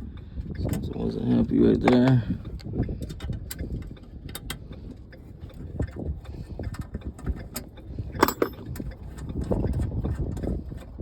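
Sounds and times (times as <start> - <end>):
low rumbling background: 0.0 - 11.0.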